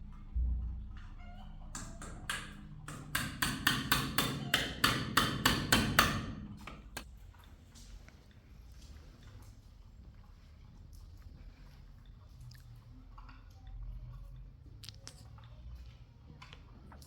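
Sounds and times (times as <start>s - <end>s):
sharp knocks: 1.8s - 7.0s.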